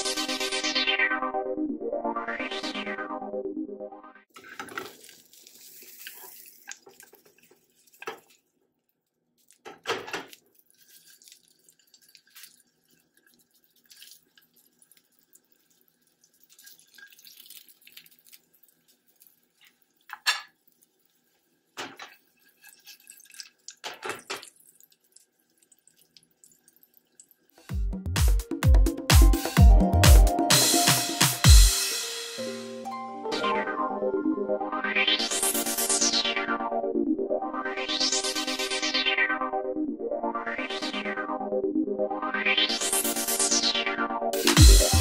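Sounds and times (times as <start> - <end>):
patty sizzling in oil: 4.4 - 8.4, 10.3 - 27.5.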